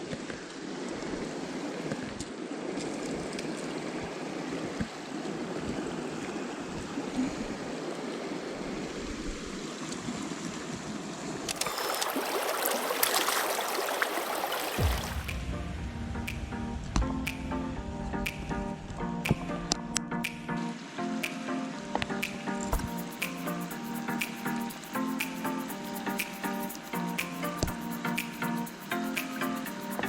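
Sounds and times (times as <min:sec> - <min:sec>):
stream water running over rocks: 0:00.0 - 0:17.4, 0:20.2 - 0:30.0
music: 0:14.8 - 0:30.0.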